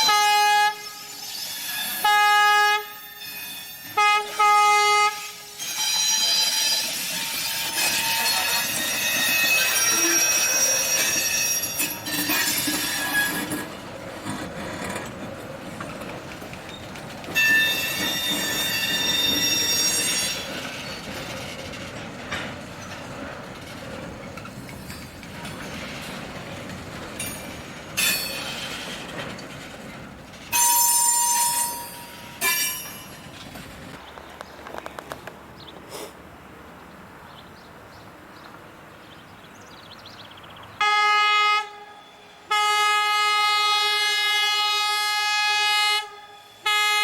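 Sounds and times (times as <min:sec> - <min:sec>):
train wheels squealing on rails: 0:00.0 - 0:34.0
rumble of train cars: 0:00.0 - 0:47.0.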